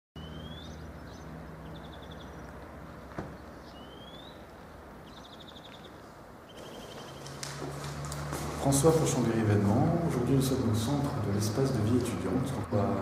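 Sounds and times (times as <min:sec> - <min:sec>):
bird rising whistle: 0:00.2 - 0:00.8, 0:03.7 - 0:04.4, 0:06.5 - 0:07.2.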